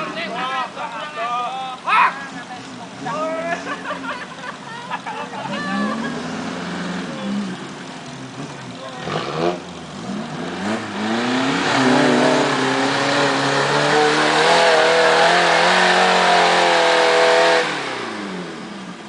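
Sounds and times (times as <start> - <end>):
engine revving hard: 8.4 - 18.7.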